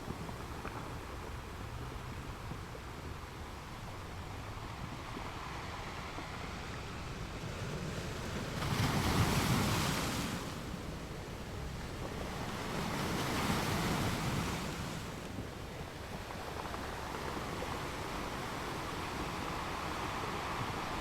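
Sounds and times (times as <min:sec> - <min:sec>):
ocean waves washing onto shore: 0:00.0 - 0:21.0.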